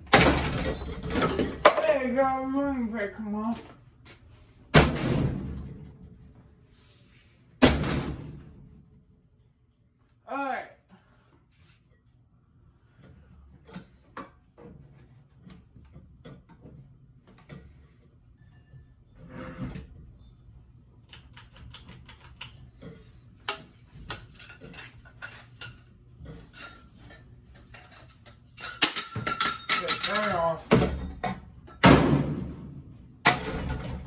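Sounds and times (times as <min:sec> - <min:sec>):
metal parts clinking and knocking: 0:21.1 - 0:31.4.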